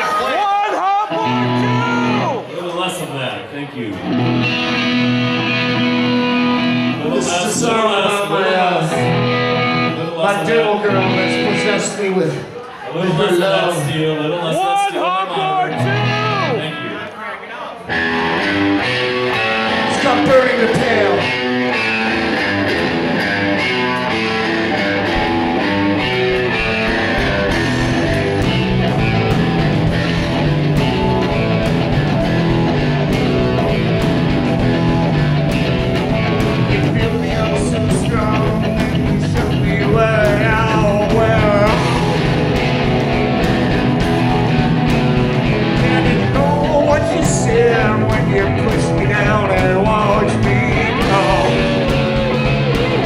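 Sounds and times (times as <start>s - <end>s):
electric guitar: 1.1s - 2.5s, 3.9s - 12.6s, 15.5s - 16.7s, 17.8s - 53.0s
live rock band playing: 1.1s - 2.5s, 3.9s - 12.6s, 15.4s - 16.7s, 17.9s - 53.0s
lap steel guitar: 4.0s - 7.5s, 8.2s - 11.8s, 17.9s - 53.0s
bass and drums: 17.9s - 53.0s.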